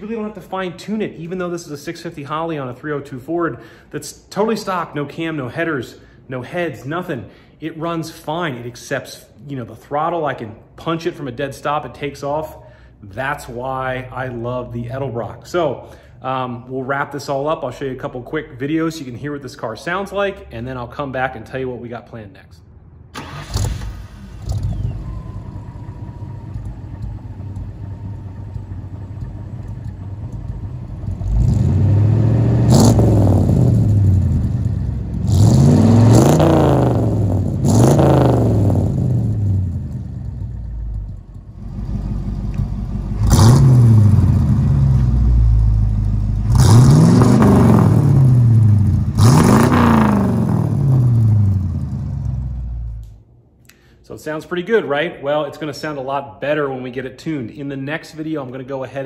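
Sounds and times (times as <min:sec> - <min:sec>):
car engine idling and revving: 0:23.5 - 0:53.1.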